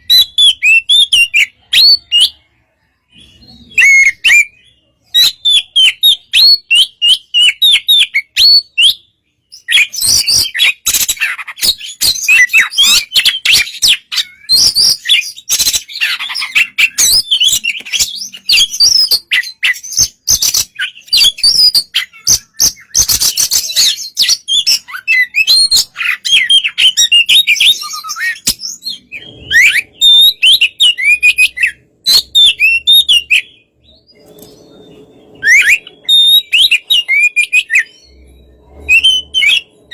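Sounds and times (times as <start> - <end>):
bird singing whistles and clicks: 5.2 - 28.8.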